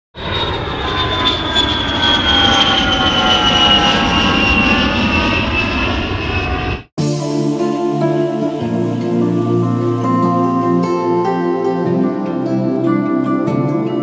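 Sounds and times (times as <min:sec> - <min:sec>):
jet engines running: 0:00.2 - 0:06.9
high whining tones gliding down: 0:00.2 - 0:11.8.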